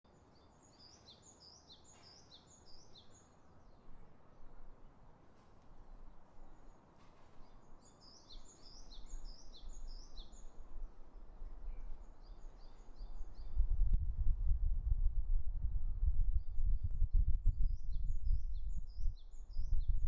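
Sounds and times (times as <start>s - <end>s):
outdoor background noise: 0.0s - 20.0s
small bird singing: 0.1s - 4.0s, 6.4s - 10.7s, 11.5s - 13.8s, 16.4s - 20.0s
low rumble: 13.4s - 20.0s.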